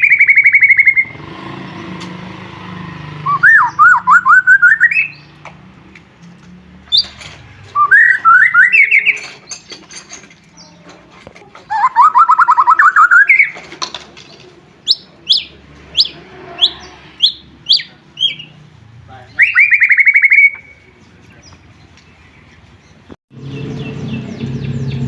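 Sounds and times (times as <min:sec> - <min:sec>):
bird whistled notes: 0:00.0 - 0:01.2, 0:03.2 - 0:05.3, 0:07.8 - 0:09.6, 0:11.7 - 0:13.6, 0:14.9 - 0:18.5, 0:19.4 - 0:20.9
bird fast trill: 0:00.0 - 0:05.4, 0:06.9 - 0:10.8, 0:11.7 - 0:13.7, 0:14.8 - 0:18.6, 0:19.3 - 0:20.9.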